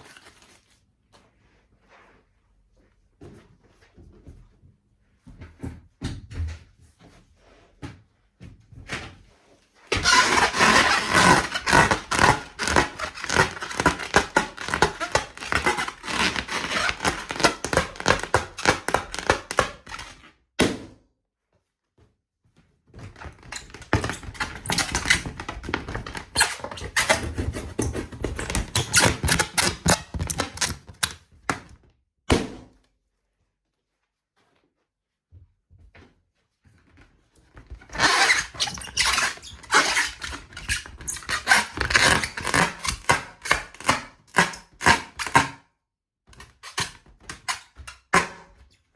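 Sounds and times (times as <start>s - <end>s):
rubber balloon squeaking: 9.9s - 20.2s, 23.2s - 31.1s, 37.8s - 45.4s.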